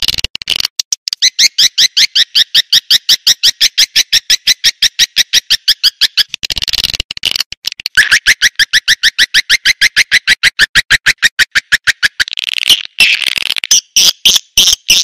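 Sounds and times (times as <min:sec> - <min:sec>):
dense bird twittering: 0:01.1 - 0:06.3, 0:08.0 - 0:12.9.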